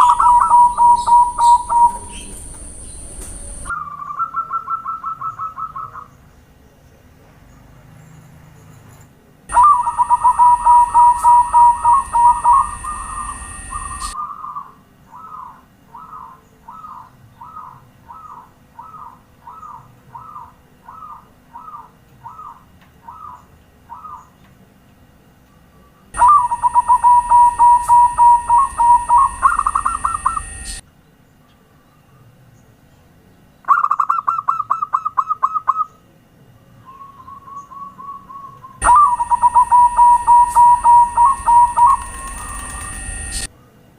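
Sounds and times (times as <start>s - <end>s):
dove trilled cooing: 0.0s - 6.2s, 9.5s - 24.3s, 26.1s - 30.8s, 33.7s - 36.0s, 36.9s - 43.5s.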